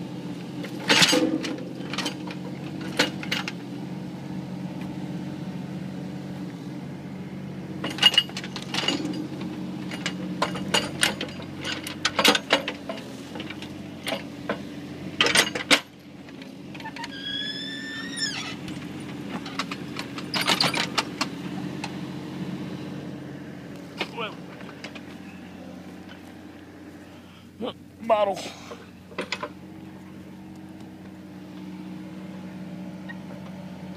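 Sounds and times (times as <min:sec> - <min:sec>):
excavator engine running: 0:00.0 - 0:33.9
brief high squeal: 0:16.9 - 0:18.5.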